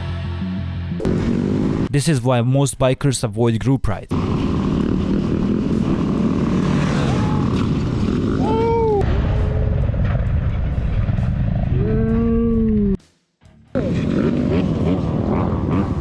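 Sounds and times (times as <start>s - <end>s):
motorcycle engines rumbling: 1.0s - 2.0s, 4.1s - 13.0s, 13.7s - 16.0s.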